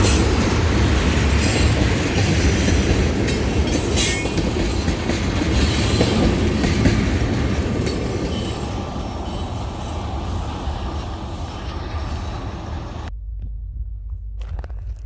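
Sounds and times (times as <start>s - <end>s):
train wheels rumbling on rails: 0.0s - 13.2s
high wheel squeal: 3.6s - 13.1s.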